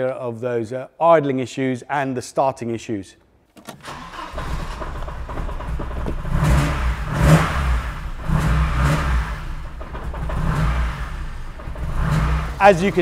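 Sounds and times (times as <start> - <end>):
car engine idling unevenly: 3.9 - 13.0.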